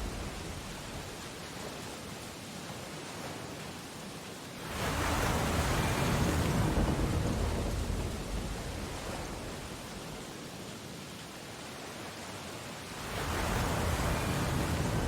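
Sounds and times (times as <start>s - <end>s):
wave breaking: 0.0s - 1.2s, 13.0s - 15.0s
ocean surf washing: 0.0s - 15.0s.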